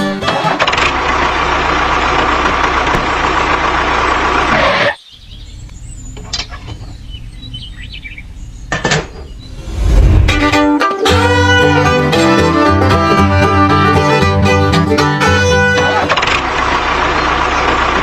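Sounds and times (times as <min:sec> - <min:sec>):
diesel engine running: 0:00.0 - 0:18.0
bird chirps: 0:04.9 - 0:09.8
low hum: 0:09.3 - 0:10.7.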